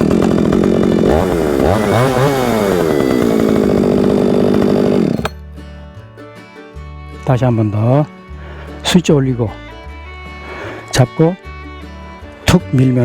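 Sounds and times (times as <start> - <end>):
chainsaw pull start: 0.0 - 5.4
chainsaw revving and running: 0.0 - 5.4.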